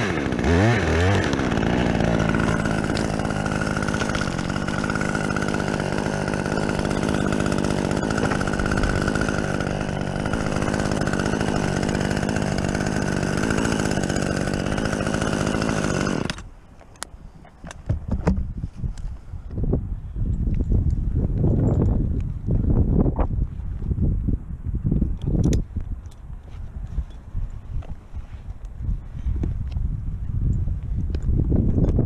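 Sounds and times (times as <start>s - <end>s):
chainsaw cutting wood: 0.0s - 16.6s.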